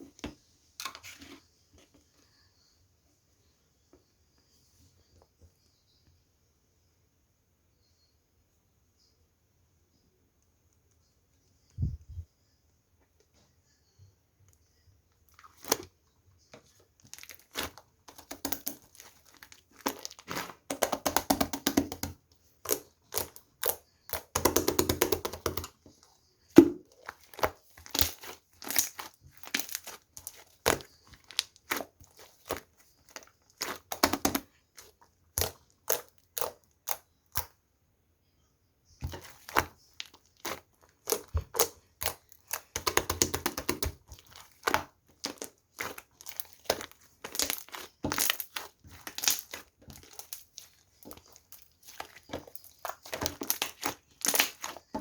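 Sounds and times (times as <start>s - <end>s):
slime popping and crackling: 17.0s - 25.8s, 26.6s - 37.5s, 39.0s - 55.0s.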